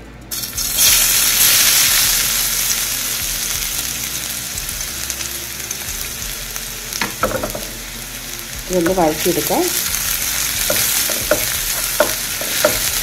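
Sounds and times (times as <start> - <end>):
paste sizzling in hot oil: 0.3 - 13.0.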